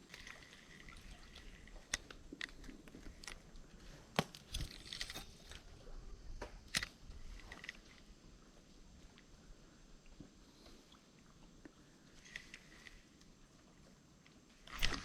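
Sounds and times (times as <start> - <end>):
crinkling ticks: 0.0 - 5.6.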